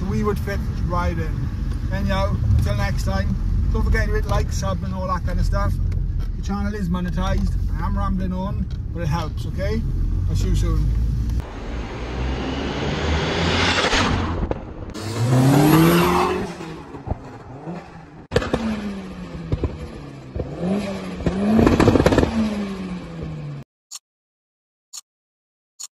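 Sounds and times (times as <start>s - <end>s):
car engines revving: 0.0s - 23.6s
exhaust pops: 16.4s - 22.5s.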